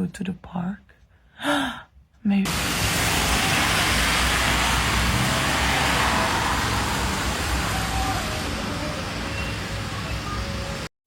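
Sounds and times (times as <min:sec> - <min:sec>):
road traffic noise: 0:02.4 - 0:10.9.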